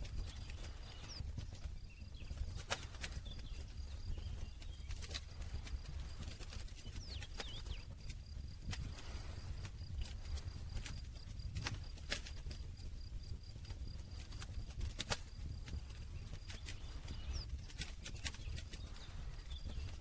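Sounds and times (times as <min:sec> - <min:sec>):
low rumble of flames: 0:00.0 - 0:20.0
wood snapping and popping: 0:10.3 - 0:12.6, 0:14.3 - 0:16.8.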